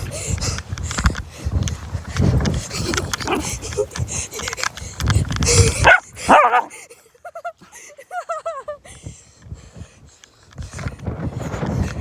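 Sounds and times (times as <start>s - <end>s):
puppy barking: 3.2s - 3.5s, 5.8s - 6.7s
puppy whining and yipping: 5.8s - 6.7s.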